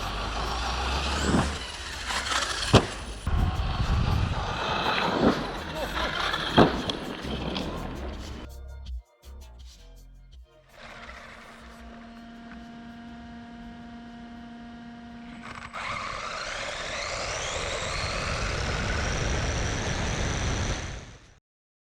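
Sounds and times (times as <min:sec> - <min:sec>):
electric motor whine: 0:00.0 - 0:08.5, 0:10.8 - 0:21.4.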